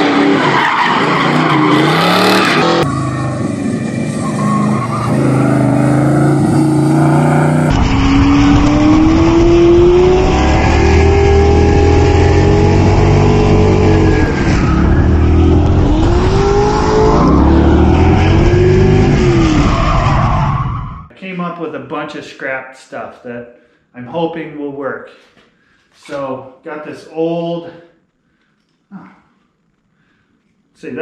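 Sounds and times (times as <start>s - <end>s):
engine revving: 1.3s - 20.5s.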